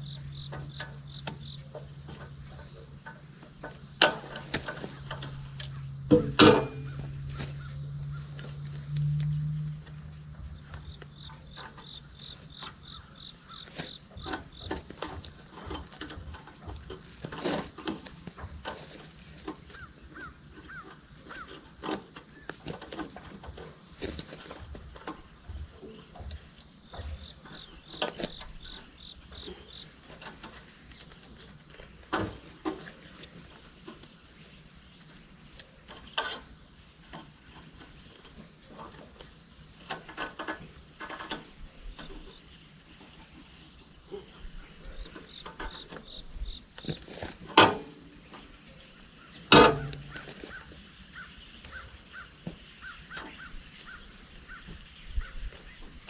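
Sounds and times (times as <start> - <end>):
insects chirring: 0.0 - 56.0
sharp knocks: 6.1 - 7.1, 49.5 - 50.2.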